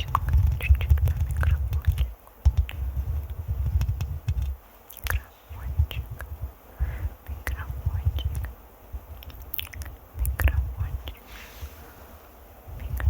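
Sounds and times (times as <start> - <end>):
sharp clicks: 0.0 - 5.2
fingers scratching a microphone: 0.0 - 11.3.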